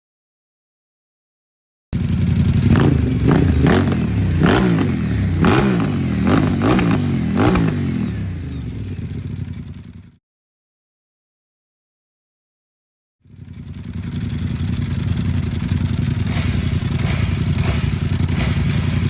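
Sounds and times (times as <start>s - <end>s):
motorcycle engine revving: 2.0s - 10.2s, 13.2s - 19.0s.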